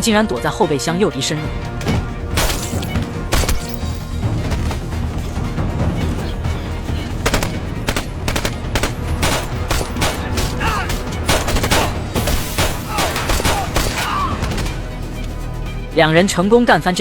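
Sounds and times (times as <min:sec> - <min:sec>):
rapid gunfire: 0:02.3 - 0:05.0, 0:07.1 - 0:14.8.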